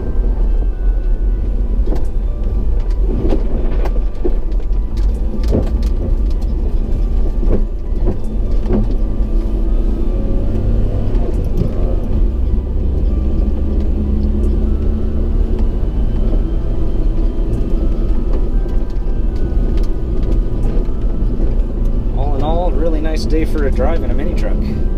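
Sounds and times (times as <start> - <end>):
truck engine rumble: 0.0 - 24.9
tyres on gravel: 15.4 - 24.9.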